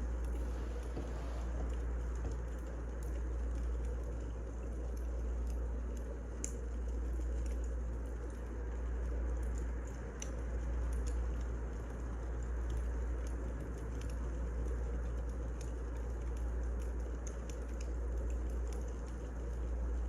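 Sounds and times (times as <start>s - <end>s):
low fire rumble: 0.0s - 20.0s
wood fire crackling: 0.0s - 20.0s.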